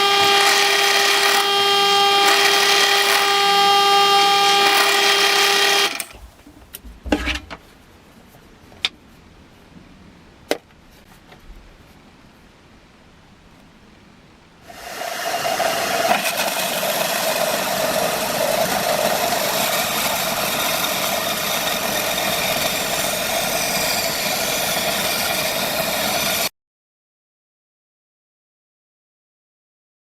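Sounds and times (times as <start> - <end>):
electric power tool grinding: 0.0 - 7.4, 14.7 - 26.5.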